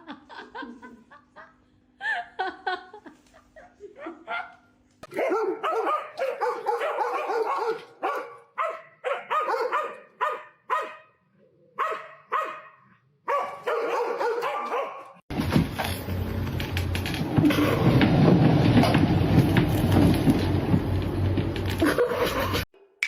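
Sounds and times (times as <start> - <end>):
dog barking and yipping: 4.3 - 11.1, 11.8 - 15.2.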